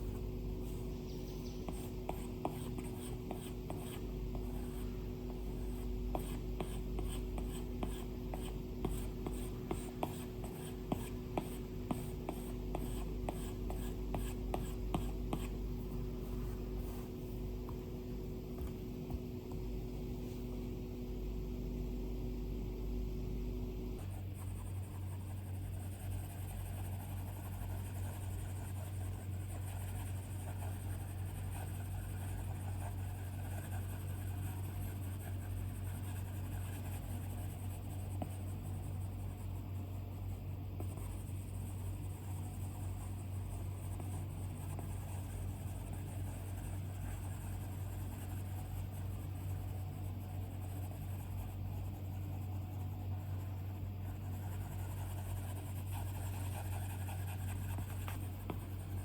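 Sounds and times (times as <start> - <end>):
stylus scratching on screen: 0.0 - 17.8, 40.8 - 59.0
low electrical hum: 0.0 - 59.0.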